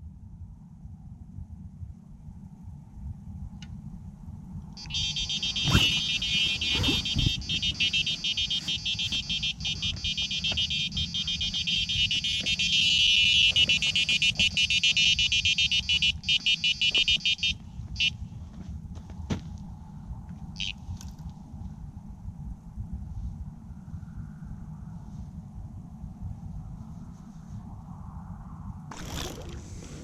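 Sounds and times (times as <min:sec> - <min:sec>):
bite alarm beeping: 0:04.8 - 0:18.2.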